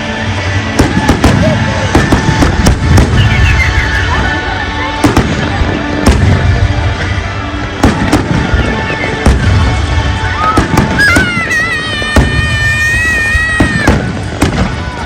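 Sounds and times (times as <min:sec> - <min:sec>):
music playing: 0:00.0 - 0:15.0
fireworks bursting: 0:00.6 - 0:15.0.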